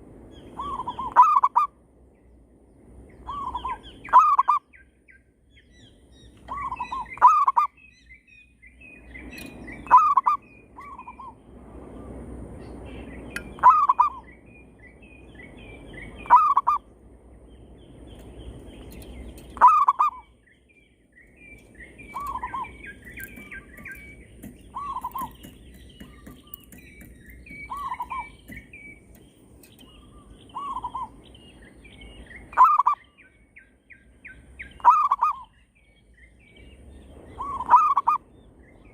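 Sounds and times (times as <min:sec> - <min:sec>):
small birds chirping: 0:00.2 - 0:38.9
doves cooing in trilled phrases: 0:03.3 - 0:04.7, 0:06.5 - 0:07.7, 0:09.4 - 0:11.3, 0:13.4 - 0:14.2, 0:16.2 - 0:16.8, 0:18.9 - 0:20.4, 0:21.6 - 0:31.3, 0:32.5 - 0:33.0, 0:34.8 - 0:35.5, 0:37.4 - 0:38.2.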